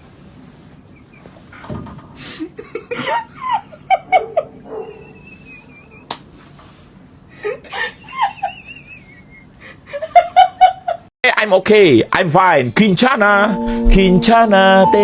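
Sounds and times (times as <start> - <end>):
people laughing: 2.6 - 6.1, 7.4 - 11.0.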